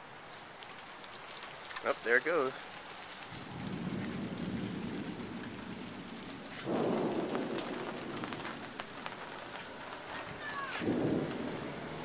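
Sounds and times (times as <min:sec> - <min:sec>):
thunder rumbling: 0:03.3 - 0:12.0.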